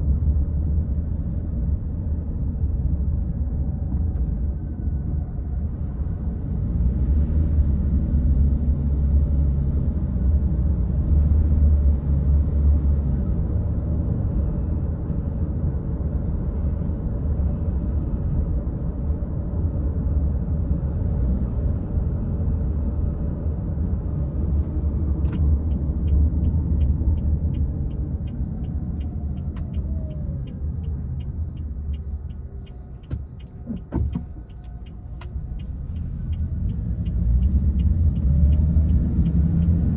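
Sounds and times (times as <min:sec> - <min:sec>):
car engine and road rumble: 0:00.0 - 0:39.9
turn signal ticking: 0:24.5 - 0:39.9.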